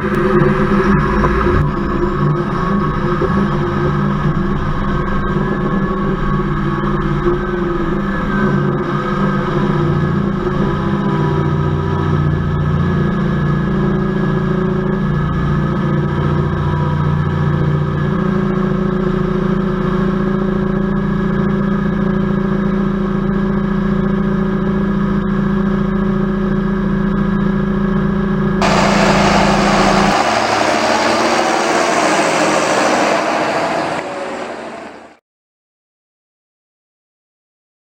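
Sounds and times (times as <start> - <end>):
loud hiss: 28.6 - 35.1
tractor diesel engine running: 28.6 - 35.2.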